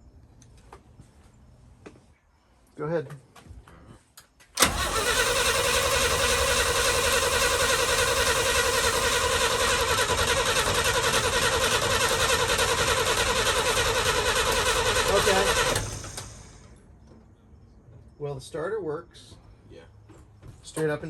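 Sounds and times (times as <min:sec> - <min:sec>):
starter motor cranking engine: 0:04.6 - 0:16.8.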